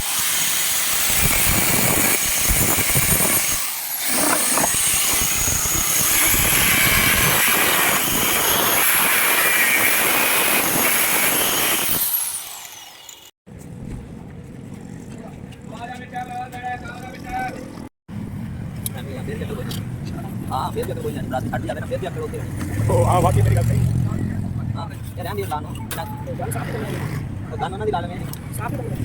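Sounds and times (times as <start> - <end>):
power tool running: 0.0 - 13.4.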